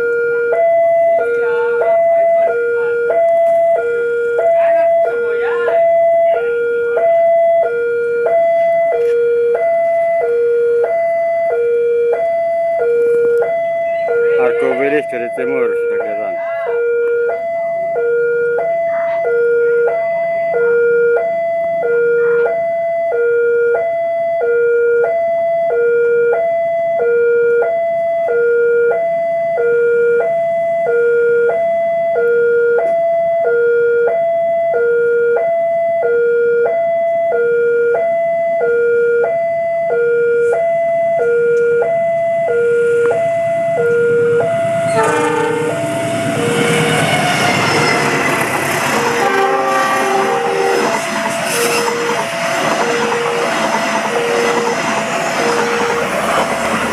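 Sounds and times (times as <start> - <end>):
oncoming train: 0.0 - 25.8, 40.7 - 56.9
level-crossing alarm ding-dong: 0.0 - 56.9.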